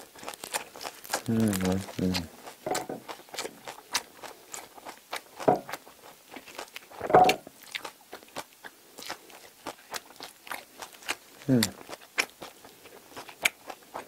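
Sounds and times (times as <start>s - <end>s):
chewing crunchy bread: 0.0s - 14.0s
wet mouth sounds: 6.4s - 14.0s.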